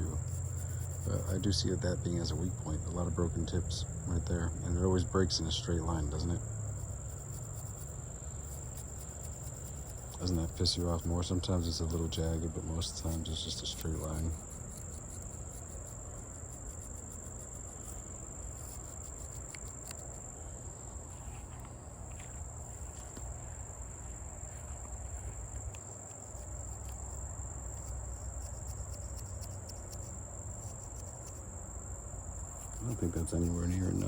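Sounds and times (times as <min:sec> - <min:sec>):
insects trilling: 0:00.0 - 0:34.0
knife blade scratching with sand: 0:06.1 - 0:20.2, 0:32.5 - 0:34.0.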